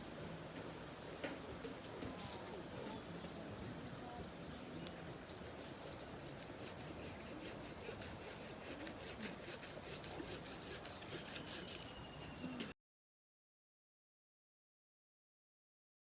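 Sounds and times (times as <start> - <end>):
wood rasping by hand: 0.0 - 3.0, 5.0 - 11.7.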